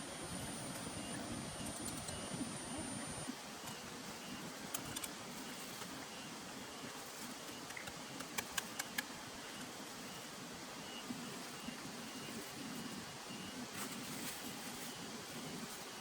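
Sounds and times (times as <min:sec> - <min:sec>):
steady outdoor hiss: 0:00.0 - 0:16.0
sharp clicks: 0:07.7 - 0:09.1.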